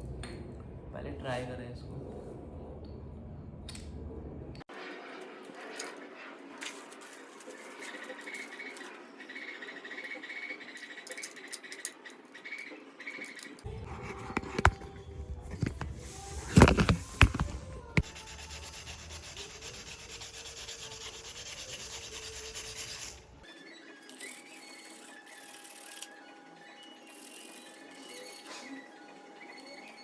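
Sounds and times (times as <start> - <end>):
cutting wheel scratching glass: 12.7 - 23.3.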